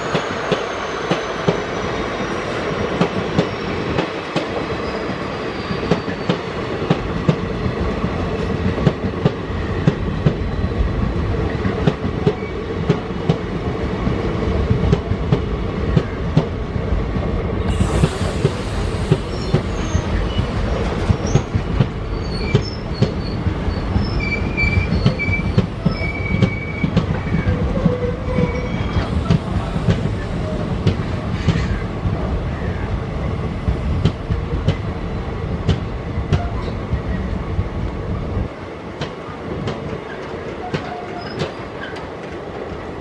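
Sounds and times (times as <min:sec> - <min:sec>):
high-pitched wheel squeals: 0:22.1 - 0:29.1.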